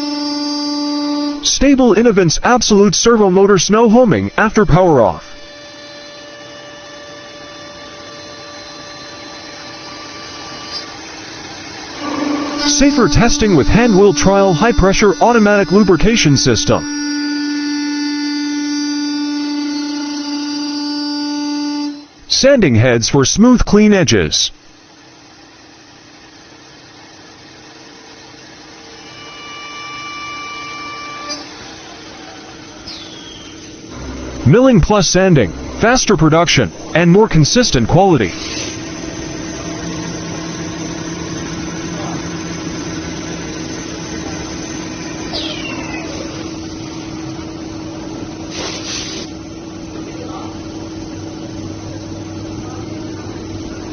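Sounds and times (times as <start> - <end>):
milling machine humming: 0.0 - 22.6, 24.6 - 53.9
high motor whine: 0.0 - 53.9
loud hiss: 34.0 - 38.9, 48.4 - 49.4.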